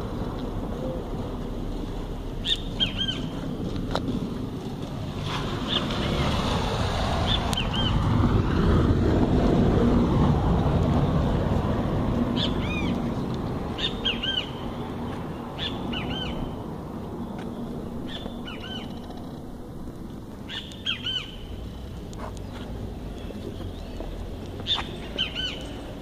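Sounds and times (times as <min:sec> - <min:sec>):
low rumbling background noise: 0:00.0 - 0:26.0
bird chirping: 0:02.4 - 0:03.4, 0:12.4 - 0:16.6, 0:17.2 - 0:19.6, 0:20.4 - 0:26.0.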